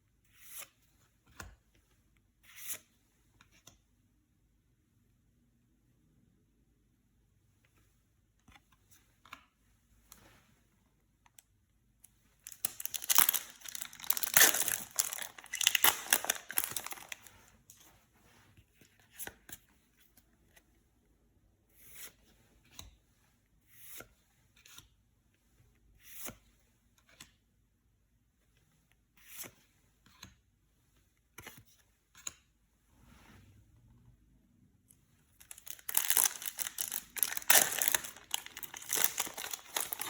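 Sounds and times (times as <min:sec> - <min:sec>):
plastic wrapper ripping and crinkling: 0:12.4 - 0:17.3, 0:35.4 - 0:40.0
cards handled: 0:12.5 - 0:17.2, 0:35.4 - 0:40.0.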